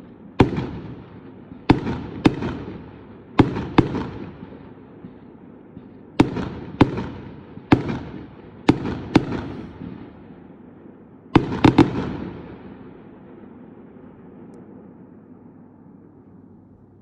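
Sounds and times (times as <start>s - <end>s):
fireworks bangs with crackle: 0.0s - 13.6s.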